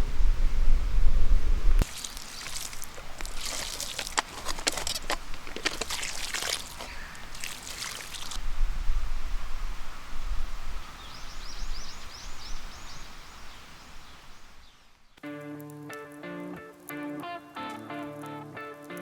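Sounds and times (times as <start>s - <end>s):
wind buffeting microphone: 0.0s - 1.9s, 8.2s - 14.7s
campfire embers crackling: 1.0s - 10.8s, 13.2s - 19.0s
short rustle: 1.8s - 8.4s.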